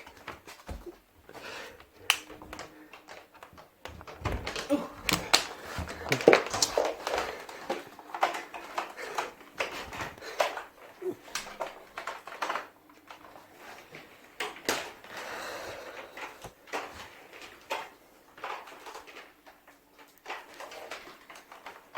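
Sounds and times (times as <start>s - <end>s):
handling clicks and rattles: 2.1s - 15.2s.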